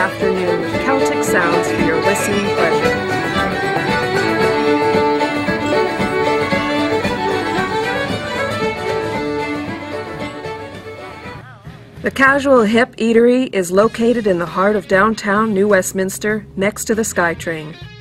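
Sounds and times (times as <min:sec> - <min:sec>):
celtic fiddle music: 0:00.0 - 0:11.4.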